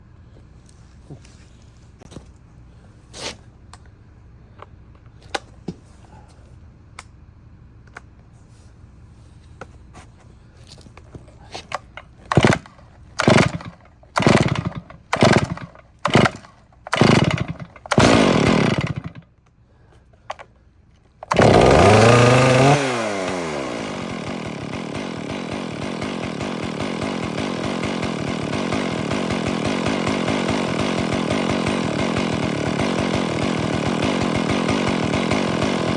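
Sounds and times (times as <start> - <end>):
starter cord pulls: 11.0 - 19.2, 20.2 - 35.9
chainsaw engine idling: 11.0 - 35.9.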